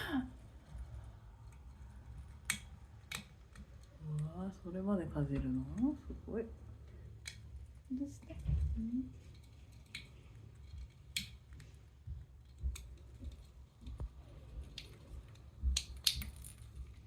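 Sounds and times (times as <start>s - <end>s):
parakeet gnawing with beak: 0.4s - 4.7s, 9.2s - 17.0s.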